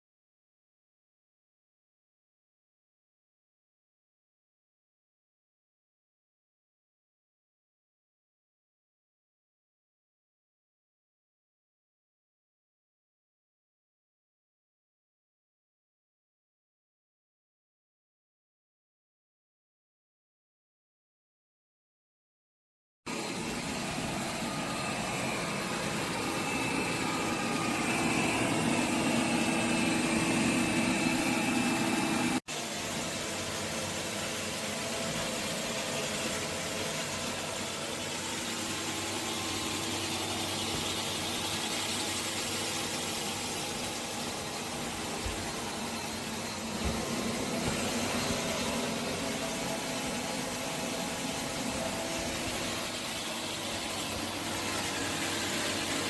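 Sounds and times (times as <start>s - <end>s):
robot vacuum cleaner whirring: 23.1s - 56.0s.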